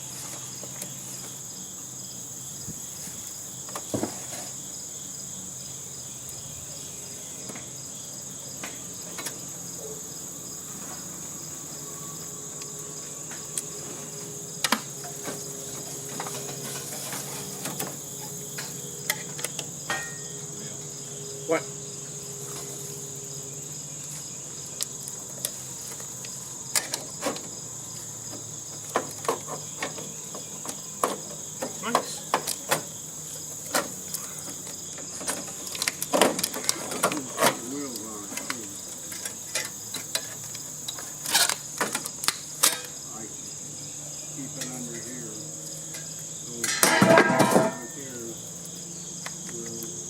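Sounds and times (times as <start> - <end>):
crickets chirring: 0.0 - 50.0.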